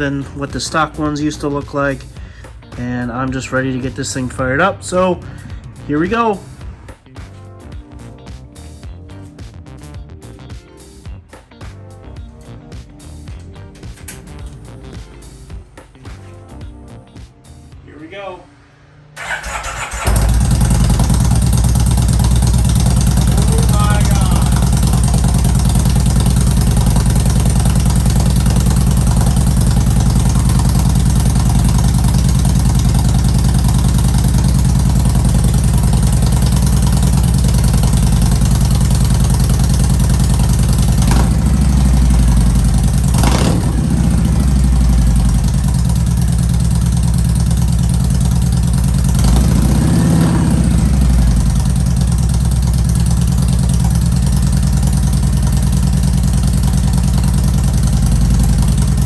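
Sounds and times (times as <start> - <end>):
motorcycle engine idling: 19.2 - 59.0
motorcycle throttle blips: 19.2 - 59.0.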